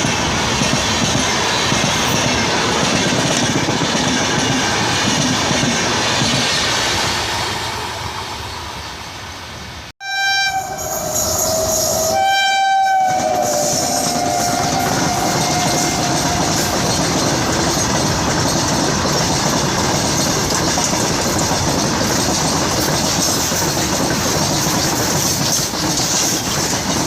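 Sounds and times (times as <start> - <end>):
train rattling: 0.0 - 9.9, 10.5 - 27.0
train horn: 10.0 - 16.9.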